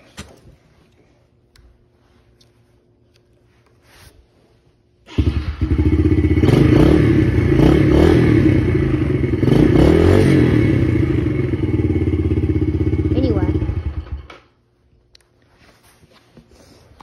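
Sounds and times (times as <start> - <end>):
dirt bike engine revving: 5.1 - 14.2.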